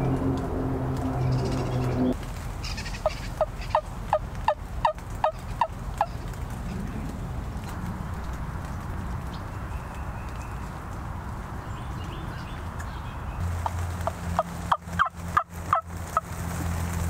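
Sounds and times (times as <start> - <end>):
low steady hum: 0.0 - 11.7
turkey yelps: 2.6 - 6.2.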